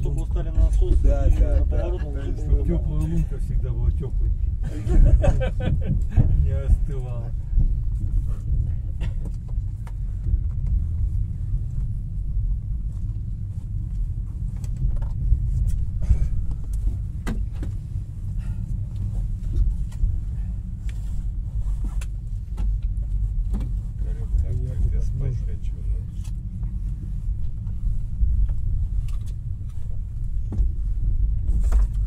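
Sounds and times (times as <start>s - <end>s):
passenger train rumbling: 0.0s - 32.0s.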